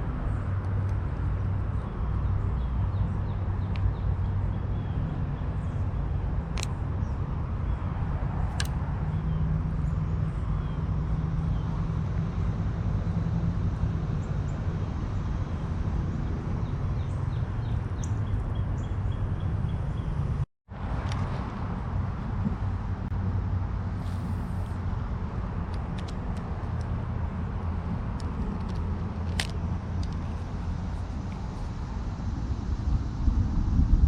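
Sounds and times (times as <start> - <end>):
steady low rumble: 0.0 - 34.0
sharp clicks: 8.5 - 8.9.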